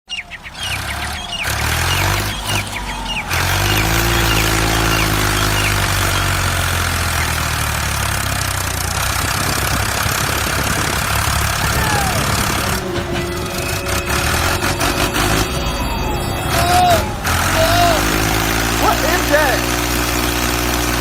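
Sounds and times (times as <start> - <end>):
vehicle engine idling: 0.1 - 21.0
short gliding chirps: 10.7 - 20.1.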